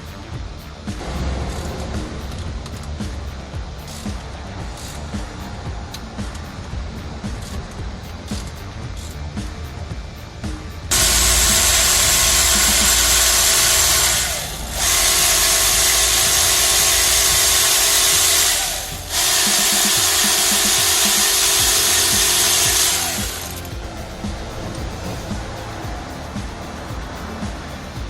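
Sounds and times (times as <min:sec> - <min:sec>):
workshop tool hissing whir: 0:10.9 - 0:25.7.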